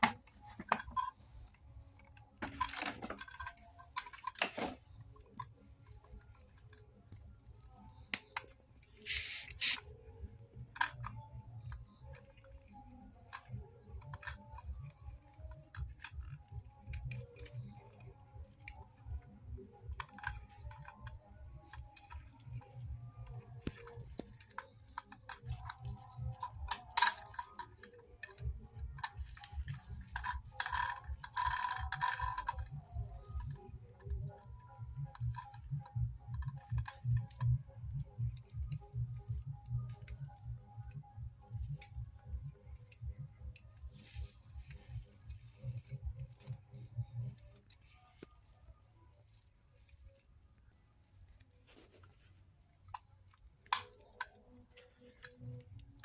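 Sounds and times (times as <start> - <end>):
small hard objects clicking: 0.0 - 56.0
short hissing bursts: 9.0 - 9.8.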